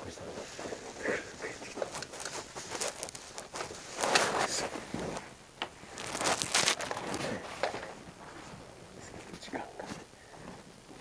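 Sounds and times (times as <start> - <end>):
materials rustling and scraping: 0.0 - 8.7.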